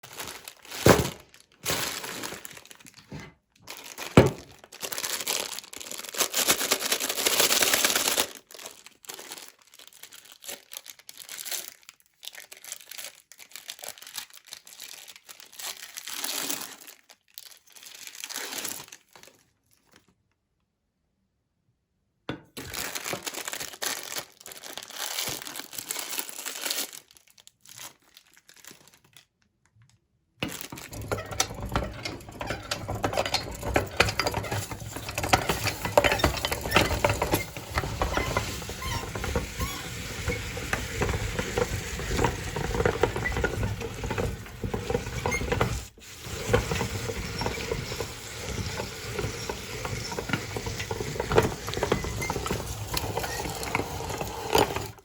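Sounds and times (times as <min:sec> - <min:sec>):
wrappers crinkling: 0:00.0 - 0:20.2, 0:22.5 - 0:29.4, 0:30.4 - 0:45.0
meat grinder running: 0:30.7 - 0:55.0.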